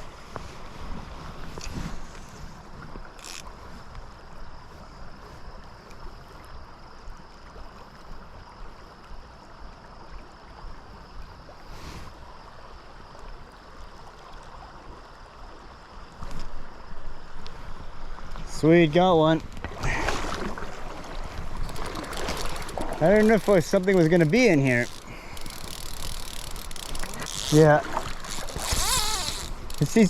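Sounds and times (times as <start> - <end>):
river current rushing: 16.8 - 30.0.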